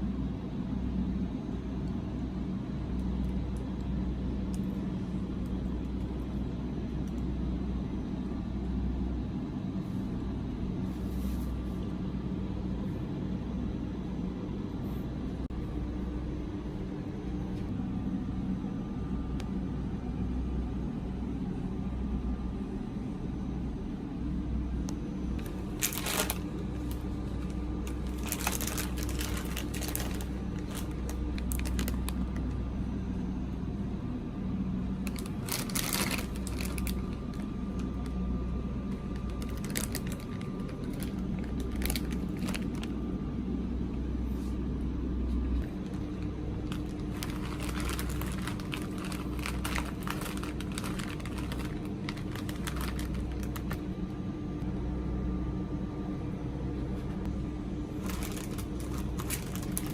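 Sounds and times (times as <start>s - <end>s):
low hum: 0.0s - 59.9s
plastic packaging crinkling: 25.4s - 32.6s, 35.0s - 38.2s, 38.9s - 43.0s, 45.6s - 53.9s, 57.9s - 59.9s.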